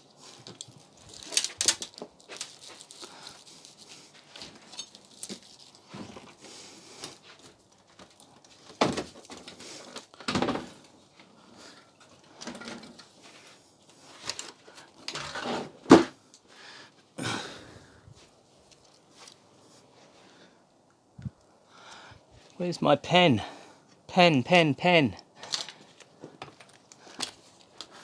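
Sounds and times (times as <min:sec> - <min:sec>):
objects knocking and clattering: 0:10.2 - 0:10.9.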